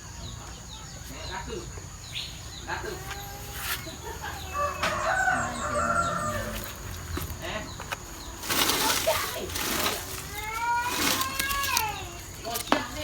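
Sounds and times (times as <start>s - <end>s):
rooster crowing: 4.2s - 6.9s
rustling: 4.6s - 13.0s.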